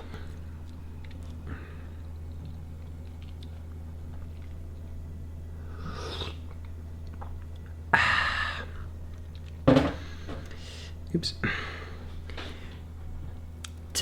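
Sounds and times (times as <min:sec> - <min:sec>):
person chewing chocolate: 0:00.1 - 0:09.6.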